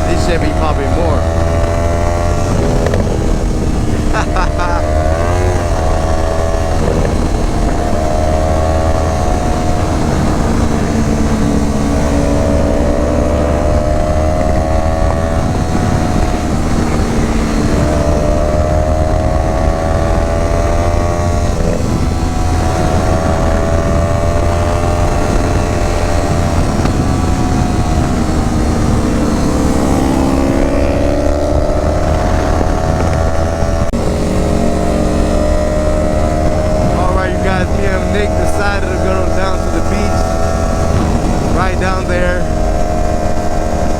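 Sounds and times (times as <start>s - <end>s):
motorcycle engine accelerating: 0.0s - 43.9s
wind on microphone: 0.0s - 43.9s.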